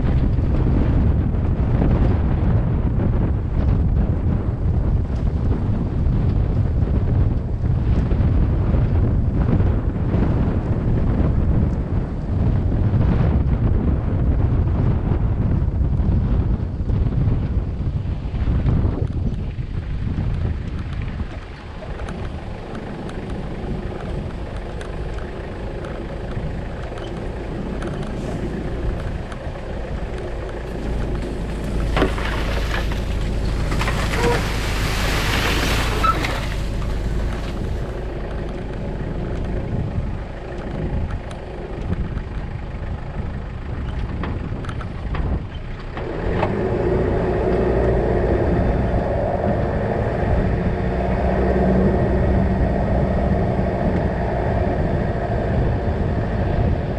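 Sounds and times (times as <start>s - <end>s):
vehicle engine rumbling: 0.0s - 56.9s
rushing noise: 21.7s - 41.1s.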